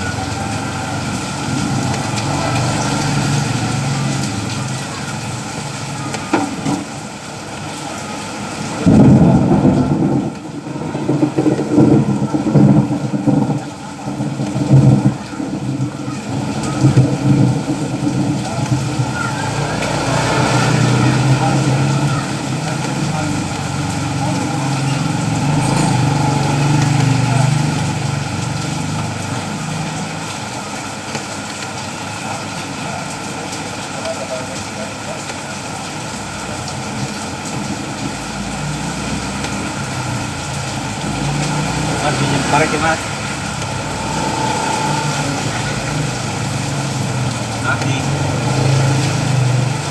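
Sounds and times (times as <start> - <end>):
thunder rolling: 0.0 - 7.0, 8.6 - 30.3
steady rain: 0.0 - 49.9
engine running: 15.6 - 30.6, 36.0 - 49.9.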